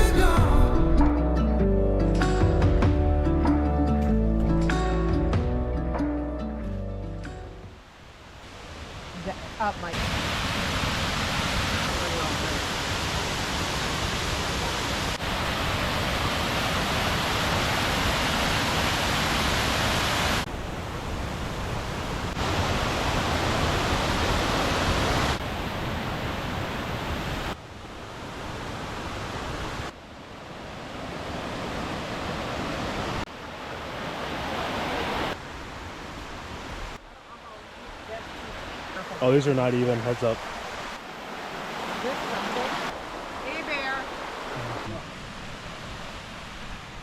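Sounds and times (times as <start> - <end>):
waterfall rushing: 8.4 - 29.9, 30.9 - 47.0.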